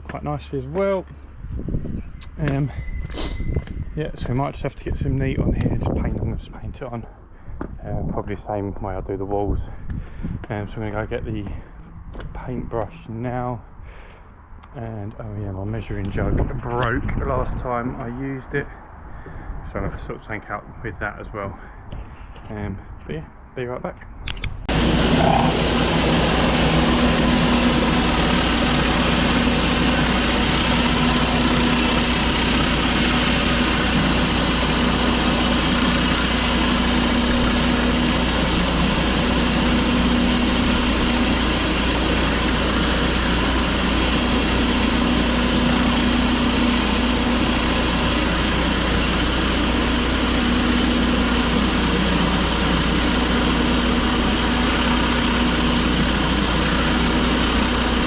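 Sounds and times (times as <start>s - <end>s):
pressure washer engine running: 24.7s - 58.0s.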